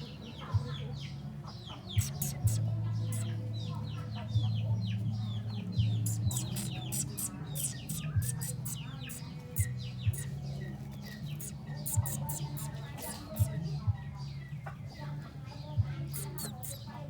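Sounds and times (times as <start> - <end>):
nestling birds cheeping: 1.8 - 3.8, 5.8 - 13.8, 16.1 - 17.0
sharp clicks: 2.0 - 2.6, 6.1 - 10.3, 11.4 - 13.5, 16.2 - 16.8.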